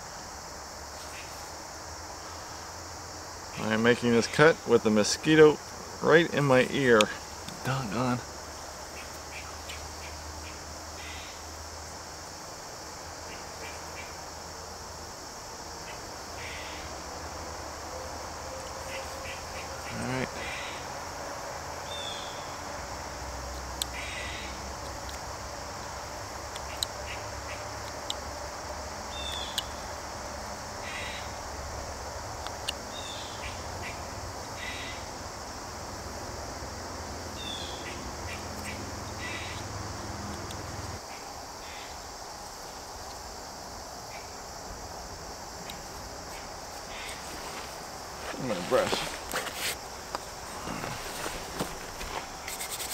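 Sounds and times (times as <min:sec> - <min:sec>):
crickets chirping: 0:00.0 - 0:52.9
outdoor background noise: 0:00.0 - 0:52.9
knife scraping wood: 0:47.0 - 0:49.8, 0:50.4 - 0:52.9
carving knife scraping wood: 0:52.0 - 0:52.9.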